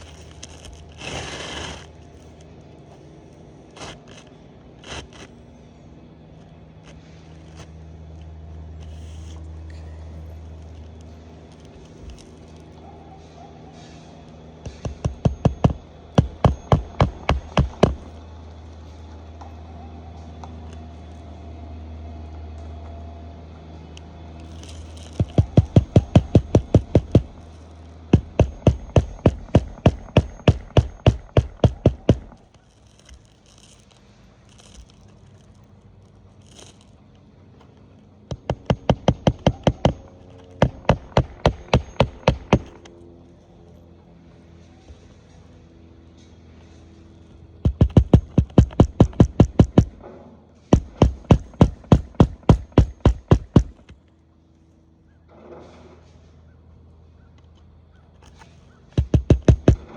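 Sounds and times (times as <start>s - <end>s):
low steady hum: 0.0s - 59.9s
hammer striking nails: 14.6s - 18.1s, 24.6s - 27.5s, 28.1s - 32.4s, 38.3s - 42.8s, 47.6s - 50.0s, 50.7s - 54.0s, 59.0s - 59.9s.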